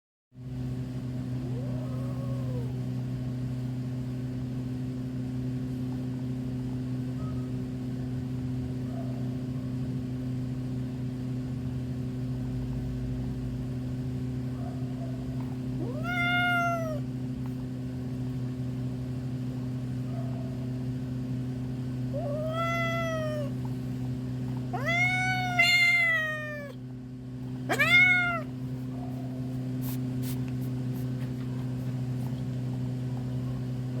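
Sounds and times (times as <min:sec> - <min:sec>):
steady low hum: 0:00.4 - 0:34.0
cat meowing: 0:01.4 - 0:02.8, 0:15.8 - 0:17.1, 0:22.1 - 0:23.7, 0:24.7 - 0:26.8, 0:27.6 - 0:28.7.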